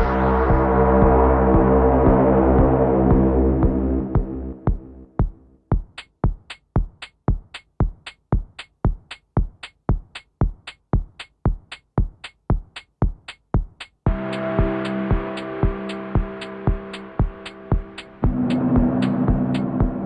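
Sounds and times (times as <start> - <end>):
synth drone: 0.0 - 5.6, 14.1 - 20.0
electronic kick drum: 0.0 - 20.0
hi-hat ticks: 5.7 - 19.7.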